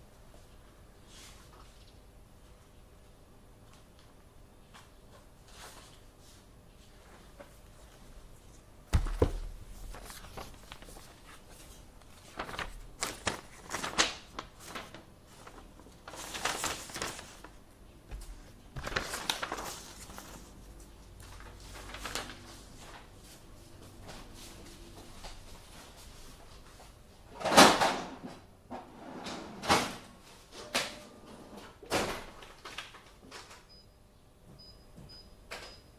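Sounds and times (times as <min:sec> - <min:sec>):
low room hum: 0:00.0 - 0:35.9
paper rustling: 0:09.0 - 0:23.4.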